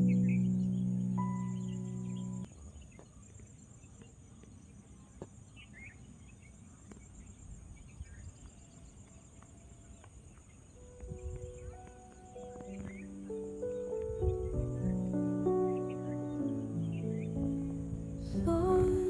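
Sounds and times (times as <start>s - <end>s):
background music chord: 0.0s - 2.5s, 11.5s - 19.0s
low wind rumble: 10.5s - 19.0s.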